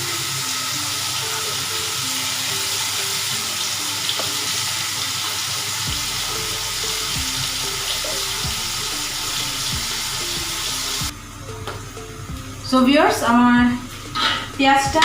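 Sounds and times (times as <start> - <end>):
onions sizzling in hot oil: 0.0 - 11.1
soft background music: 0.0 - 15.0.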